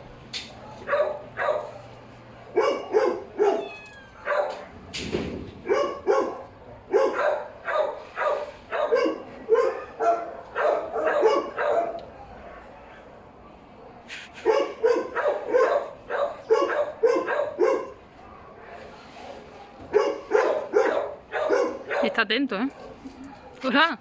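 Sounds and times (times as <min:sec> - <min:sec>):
dog barking: 0:00.6 - 0:04.9, 0:05.6 - 0:13.1, 0:13.8 - 0:23.7.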